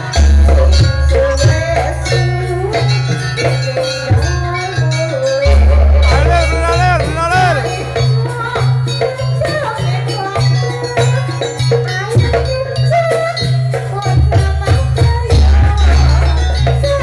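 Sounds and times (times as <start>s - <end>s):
rattling percussion: 0.0s - 17.0s
heavy low drum beats: 5.5s - 8.8s.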